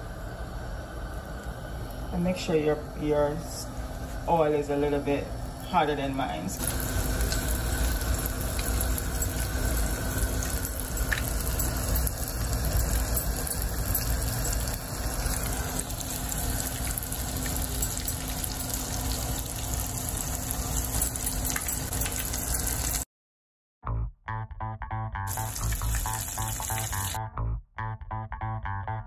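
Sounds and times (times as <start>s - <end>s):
chicken sizzling in oil: 6.6s - 23.0s, 25.3s - 27.2s.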